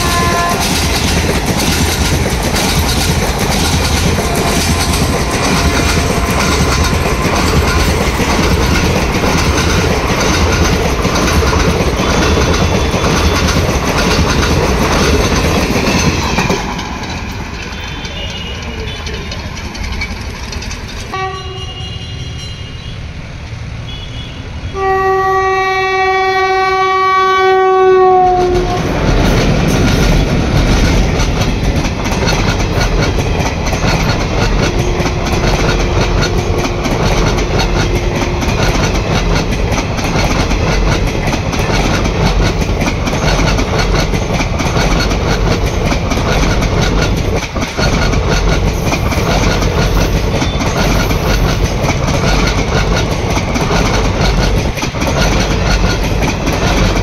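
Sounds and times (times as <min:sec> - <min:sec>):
train horn blasts: 0:00.0 - 0:00.8, 0:21.1 - 0:23.0, 0:23.9 - 0:28.9
clickety-clack over rail joints: 0:00.0 - 0:22.1, 0:24.8 - 0:57.0
train wheels on rails: 0:00.0 - 0:57.0.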